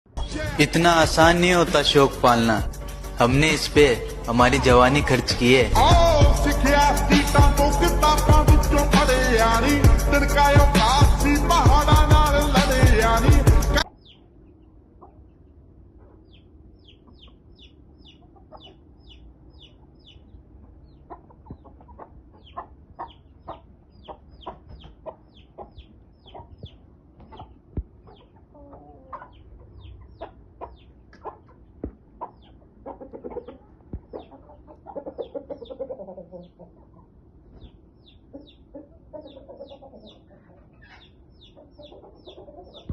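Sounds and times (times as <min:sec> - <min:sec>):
chickens clucking: 0:03.8 - 0:05.9, 0:13.8 - 0:42.9
chickens high-pitched calls: 0:13.8 - 0:42.9.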